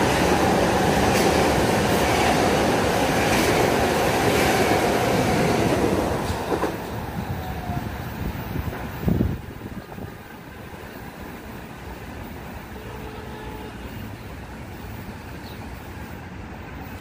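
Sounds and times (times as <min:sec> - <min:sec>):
train wheels clacking: 0:00.0 - 0:07.0
train low rumble: 0:00.0 - 0:17.0.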